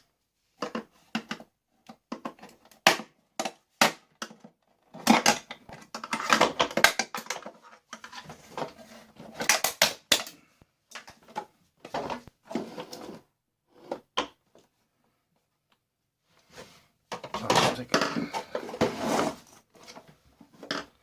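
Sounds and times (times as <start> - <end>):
plastic parts knocking and rattling: 0.6 - 13.1, 17.1 - 21.0.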